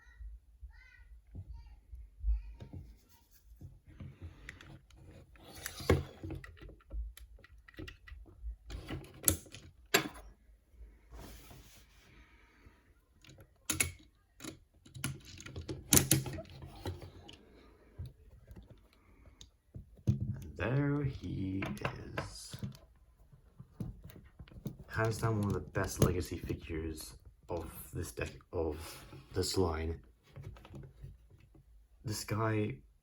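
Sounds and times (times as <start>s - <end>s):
plastic toy parts clicking: 13.2s - 17.4s.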